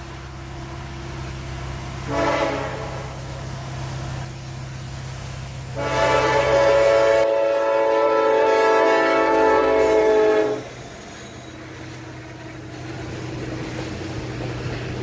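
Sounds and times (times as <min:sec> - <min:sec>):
locomotive air horn blasts: 0:02.0 - 0:03.4, 0:05.7 - 0:10.8.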